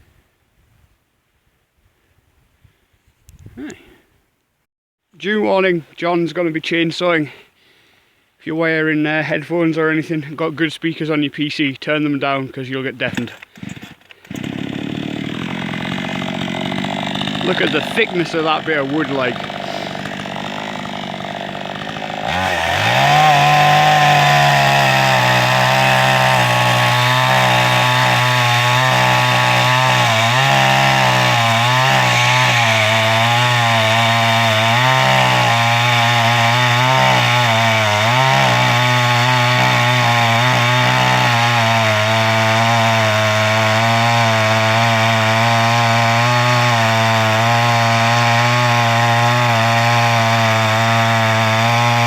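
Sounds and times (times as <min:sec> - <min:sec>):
chainsaw cutting a log: 0:13.1 - 0:52.0.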